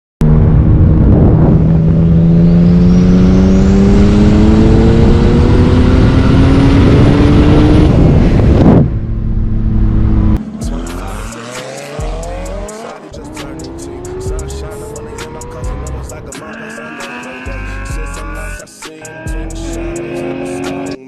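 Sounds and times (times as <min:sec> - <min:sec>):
car engine pulling hard: 0:00.2 - 0:18.6
high turbo whine: 0:00.2 - 0:21.0
throttle closing rush: 0:10.4 - 0:21.0.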